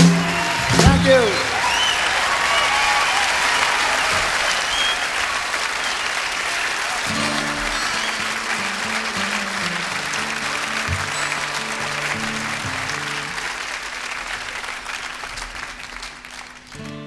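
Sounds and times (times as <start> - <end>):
audience applauding: 0.0 - 17.0
guitar notes: 7.0 - 13.5, 16.7 - 17.0.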